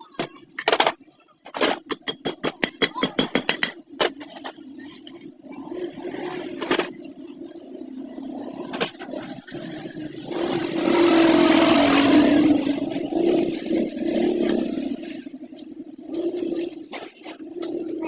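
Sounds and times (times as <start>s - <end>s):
motor running: 3.9s - 18.0s.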